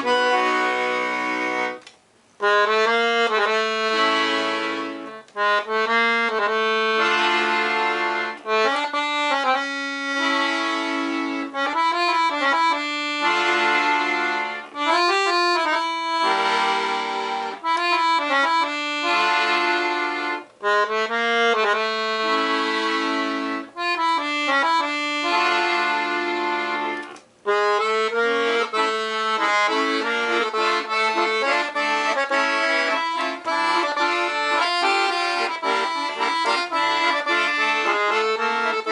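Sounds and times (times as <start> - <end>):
accordion playing a tune: 0.0 - 38.9.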